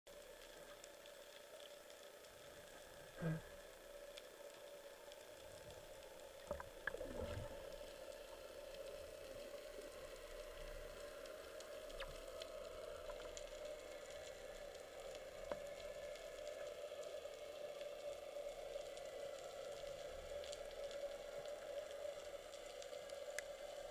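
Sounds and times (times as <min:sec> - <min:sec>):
underwater crackling hiss: 0:00.1 - 0:23.9
low hum: 0:05.6 - 0:16.6.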